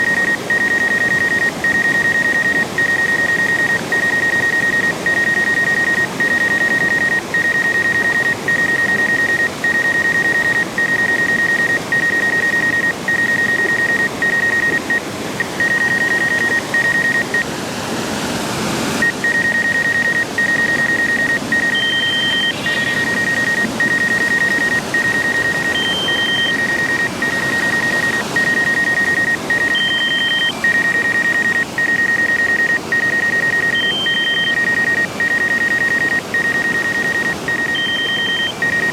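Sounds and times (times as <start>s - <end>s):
higher short beep: 0.0s - 17.4s, 19.0s - 38.9s
electronic beeper tone: 11.2s - 17.4s, 19.0s - 38.9s
steady rushing noise: 13.8s - 31.4s.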